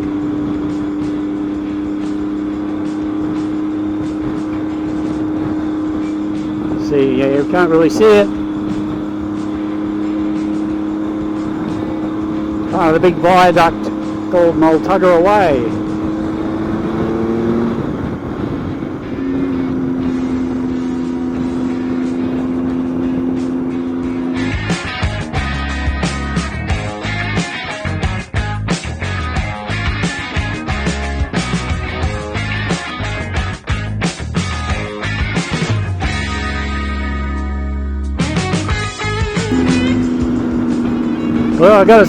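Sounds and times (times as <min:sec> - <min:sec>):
wind noise: 0:00.0 - 0:28.2, 0:38.6 - 0:42.0
motorcycle engine cruising: 0:00.0 - 0:42.0
road noise: 0:00.0 - 0:42.0.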